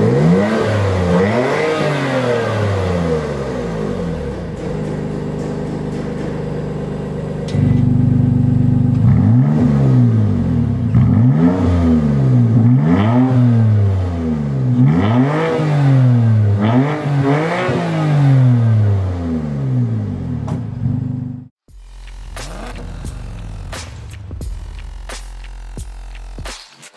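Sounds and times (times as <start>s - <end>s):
engine revving: 0.0s - 26.5s
car engine idling: 3.2s - 11.3s, 19.9s - 26.0s.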